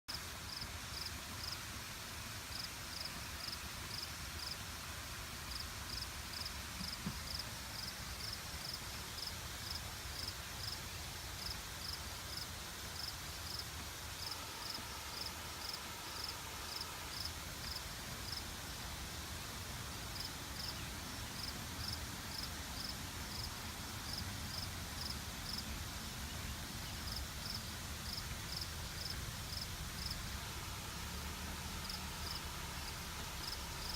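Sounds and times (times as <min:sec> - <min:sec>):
insect chirping: 0:00.5 - 0:01.6, 0:02.5 - 0:04.6, 0:05.5 - 0:10.8, 0:11.4 - 0:12.4, 0:13.0 - 0:13.6, 0:14.2 - 0:18.4, 0:20.2 - 0:20.8, 0:21.4 - 0:23.5, 0:24.1 - 0:25.6, 0:27.1 - 0:30.2, 0:31.8 - 0:33.9.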